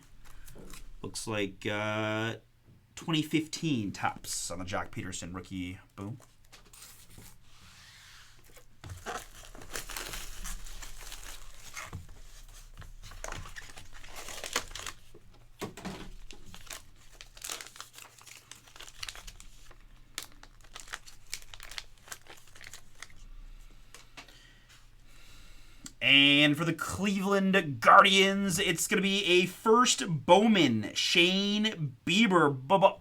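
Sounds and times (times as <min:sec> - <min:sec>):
packaging crinkling and tearing: 0:08.6 - 0:15.2, 0:15.9 - 0:23.3.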